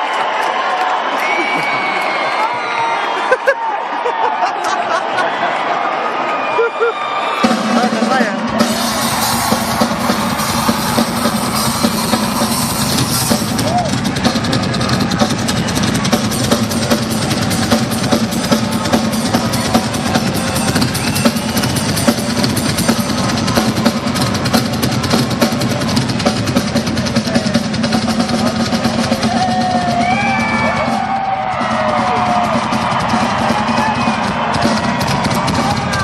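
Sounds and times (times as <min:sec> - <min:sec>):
fast rock drum solo: 0:07.4 - 0:36.0.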